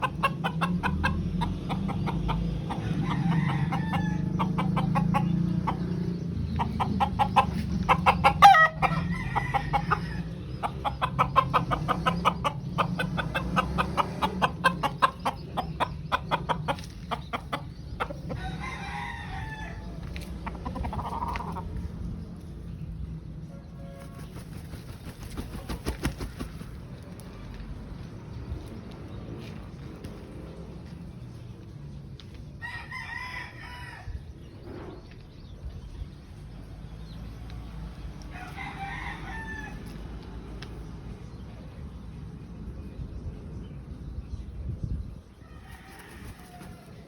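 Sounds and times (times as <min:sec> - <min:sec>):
roosters clucking: 0:00.0 - 0:43.0, 0:45.1 - 0:47.0
rooster crowing: 0:02.9 - 0:04.3, 0:18.4 - 0:19.9, 0:38.3 - 0:39.9.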